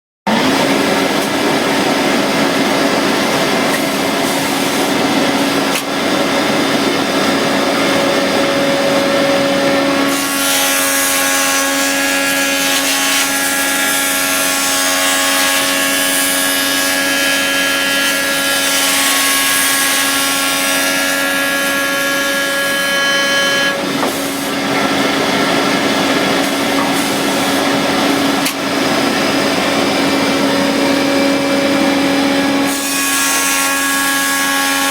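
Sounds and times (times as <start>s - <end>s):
machine motor hum: 0.3s - 14.8s, 23.3s - 34.9s
hissing wood cutting: 0.3s - 34.9s.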